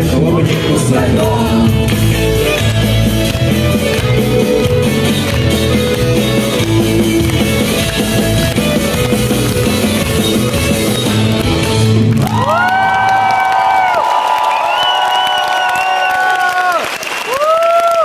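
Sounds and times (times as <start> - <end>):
live rock band playing: 0.0 - 12.6.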